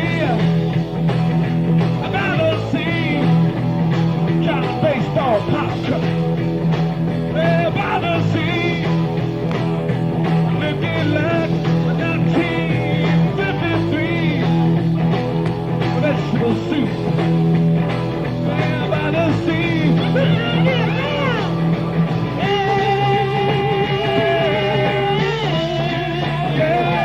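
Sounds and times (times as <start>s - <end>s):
lead guitar line bending: 0.0s - 27.0s
rock band playing blues: 0.0s - 27.0s.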